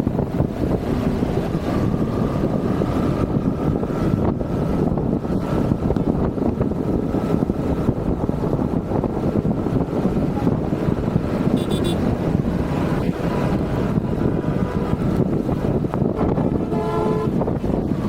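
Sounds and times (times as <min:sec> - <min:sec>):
moving vehicle rumble: 0:00.0 - 0:18.0
wind buffeting microphone: 0:00.0 - 0:18.0
short tone: 0:11.6 - 0:12.0.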